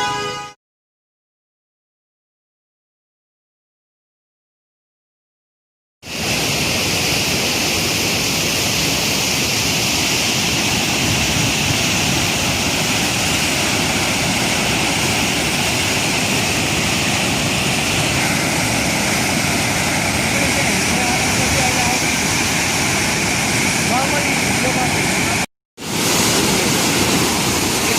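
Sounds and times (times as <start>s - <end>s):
floodwater rushing: 6.0s - 27.9s.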